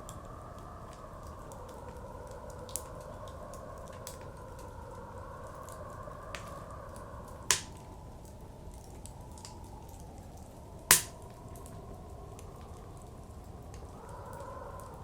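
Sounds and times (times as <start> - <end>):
blizzard wind: 0.0 - 15.0
wood fire crackling: 0.0 - 15.0
loud fire pops: 7.5 - 7.8, 10.9 - 11.6.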